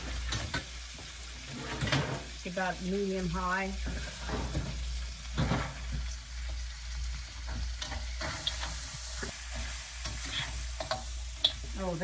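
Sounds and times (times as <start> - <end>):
utensil scraping a wok: 0.0 - 2.4, 7.0 - 12.0
food sizzling in a wok: 0.0 - 12.0.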